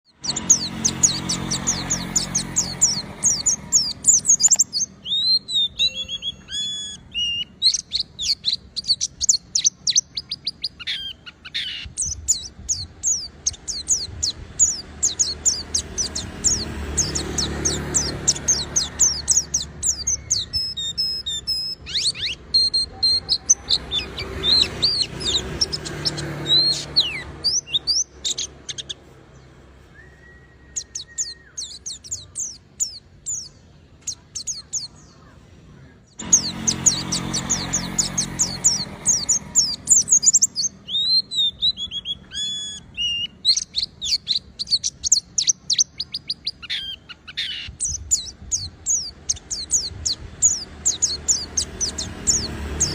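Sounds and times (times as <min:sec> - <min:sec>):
bird chirping and trilling: 0:00.0 - 0:52.9
bird whistled notes: 0:00.1 - 0:29.0, 0:29.8 - 0:33.6, 0:36.2 - 0:52.9.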